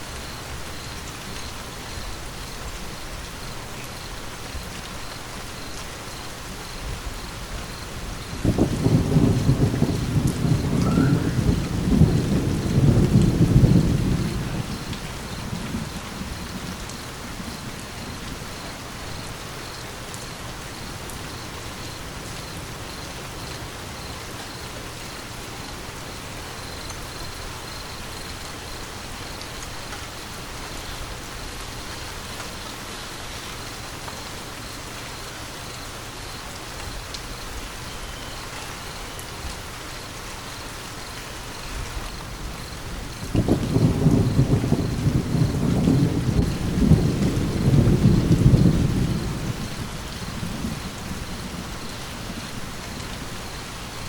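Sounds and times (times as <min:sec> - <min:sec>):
steady rain: 0:00.0 - 0:54.0
thunder rumbling: 0:06.8 - 0:19.4, 0:41.8 - 0:54.0.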